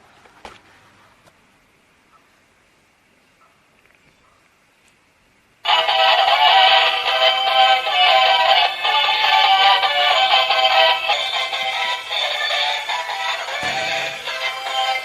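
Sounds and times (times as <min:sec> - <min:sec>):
toy electronic tune with synthetic singing: 0:05.7 - 0:15.0.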